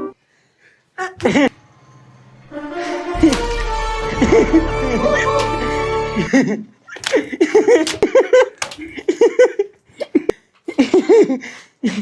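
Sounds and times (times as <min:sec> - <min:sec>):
sharp slaps: 0:02.9 - 0:04.6, 0:05.3 - 0:06.1, 0:07.0 - 0:09.0
people laughing: 0:02.9 - 0:09.8.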